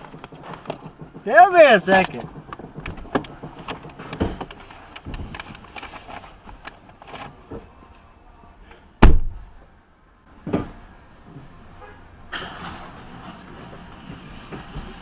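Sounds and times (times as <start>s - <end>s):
car door shutting: 9.0s - 9.4s.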